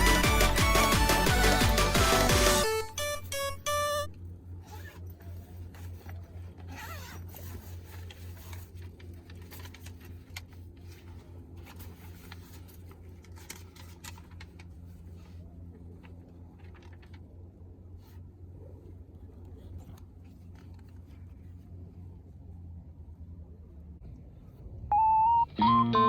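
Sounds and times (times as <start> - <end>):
rustling and clicking: 4.6 - 18.3, 19.2 - 21.6
short musical phrase: 24.9 - 26.0.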